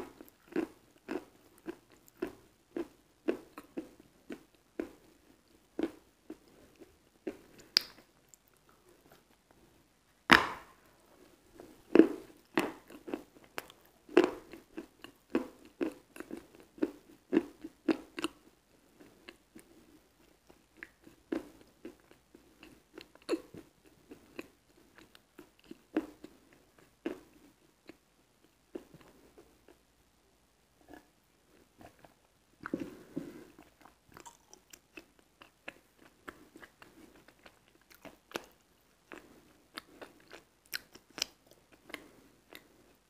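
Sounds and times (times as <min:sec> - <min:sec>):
chewing with crunching clicks: 0:00.1 - 0:08.9, 0:11.9 - 0:28.0, 0:33.6 - 0:43.0.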